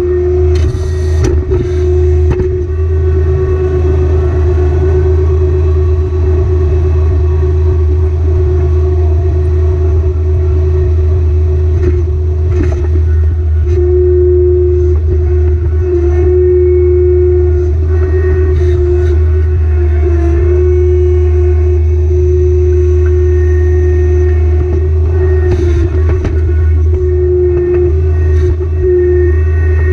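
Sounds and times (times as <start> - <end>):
steady high tone: 0.0 - 29.9
tractor diesel engine running: 0.0 - 29.9.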